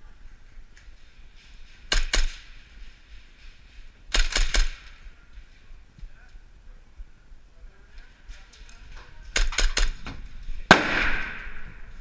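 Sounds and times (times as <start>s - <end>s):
airsoft gun rapid shots: 1.9s - 2.5s, 4.1s - 4.8s.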